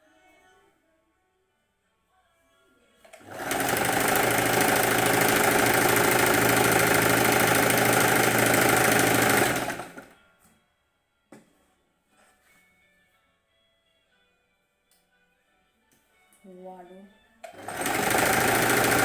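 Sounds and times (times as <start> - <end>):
sewing machine running: 3.1 - 10.1, 17.5 - 19.0.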